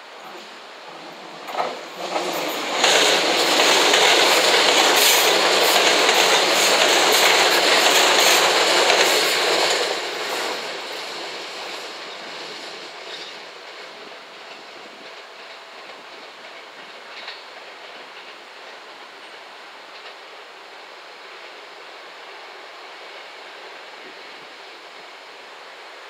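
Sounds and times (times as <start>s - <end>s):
train wheels clacking on rails: 1.4s - 20.4s.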